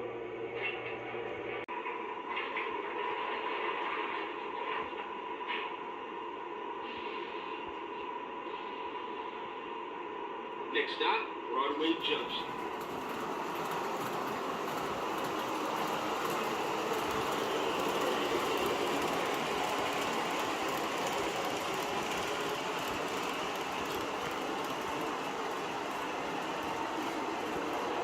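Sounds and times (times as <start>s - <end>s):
toy train rolling rumble: 12.0s - 28.0s
wheels clicking over track: 12.4s - 28.0s.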